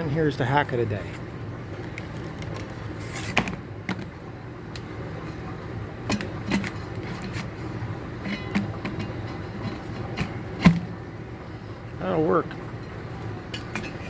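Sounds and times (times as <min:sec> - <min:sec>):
steady low hum: 0:00.0 - 0:14.0
clicks and knocks of objects: 0:01.8 - 0:04.2.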